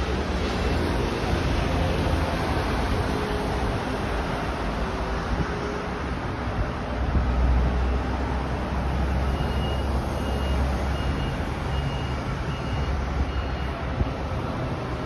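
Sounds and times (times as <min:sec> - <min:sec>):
high electronic beep: 0:09.3 - 0:13.8.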